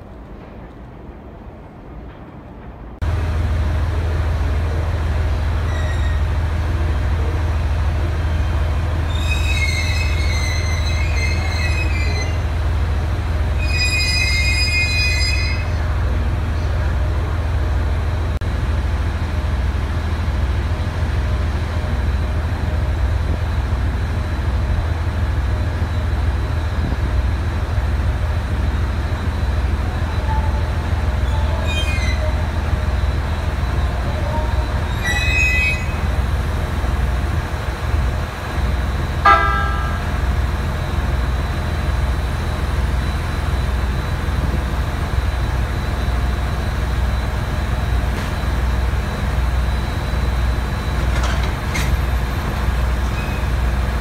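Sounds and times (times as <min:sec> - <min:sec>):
train low rumble: 0:00.0 - 0:54.0
wheel and brake squeal: 0:05.6 - 0:06.3, 0:08.3 - 0:12.5, 0:13.6 - 0:15.8, 0:30.0 - 0:36.2, 0:50.8 - 0:53.9.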